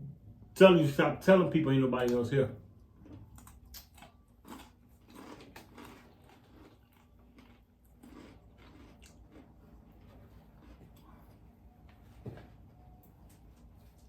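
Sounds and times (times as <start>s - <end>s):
chewing crunchy food: 2.8s - 11.6s.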